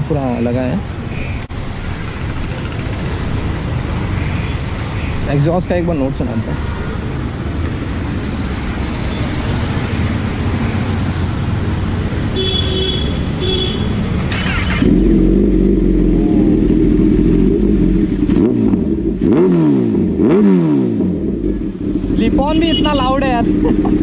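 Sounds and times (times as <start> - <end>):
motorcycle engine idling and revving: 0.0 - 24.0.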